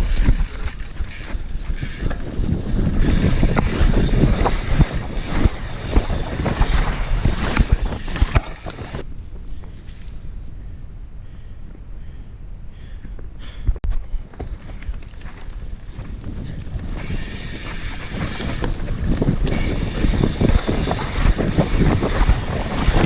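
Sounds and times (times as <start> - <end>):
bike rattling and knocking: 0.0 - 9.0, 14.0 - 23.0
wind rushing over microphone: 0.0 - 23.0.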